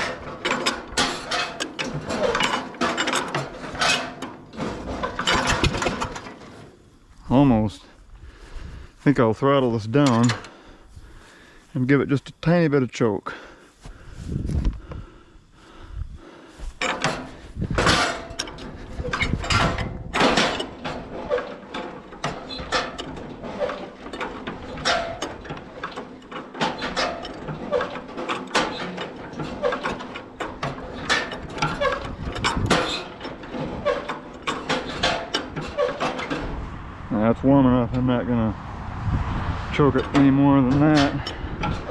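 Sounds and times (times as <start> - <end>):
engine clicks and knocks: 0.0 - 6.8, 10.0 - 10.6, 16.5 - 36.8, 39.7 - 41.9
tractor engine idling: 0.0 - 11.8, 16.5 - 39.0.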